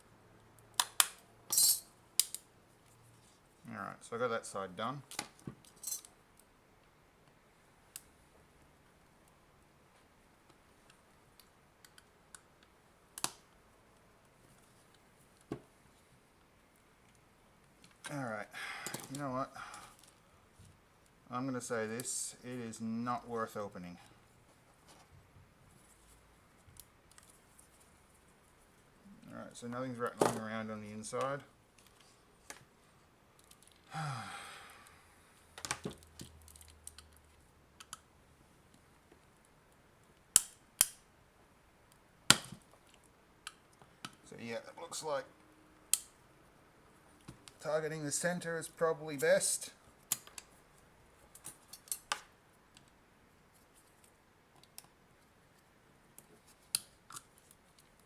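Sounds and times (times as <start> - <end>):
man sighing: 18.5 - 19.9, 33.9 - 35.2.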